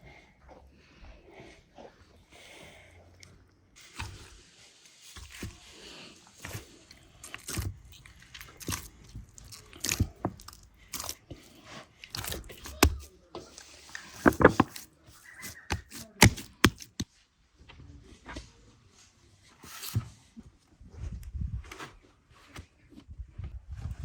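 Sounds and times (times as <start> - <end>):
hands kneading dough: 3.8 - 18.5.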